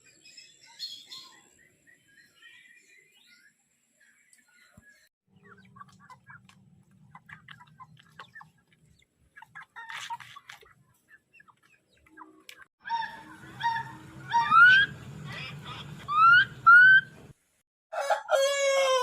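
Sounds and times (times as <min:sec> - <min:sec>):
chickens clucking: 0:05.3 - 0:17.2.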